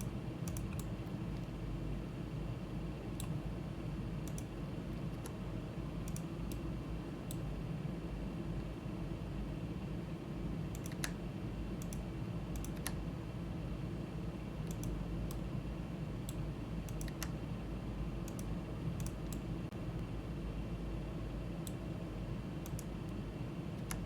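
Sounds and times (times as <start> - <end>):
low computer hum: 0.0 - 24.0
mouse and keyboard clicks: 10.8 - 11.2.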